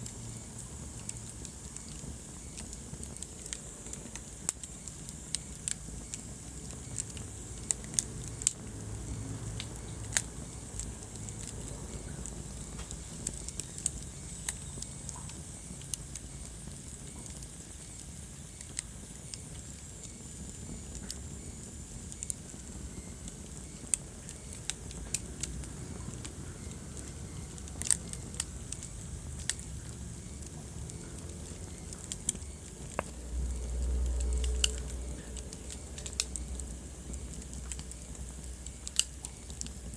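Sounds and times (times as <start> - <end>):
fire low rumble: 0.0 - 39.9
wood fire crackling: 0.0 - 39.9.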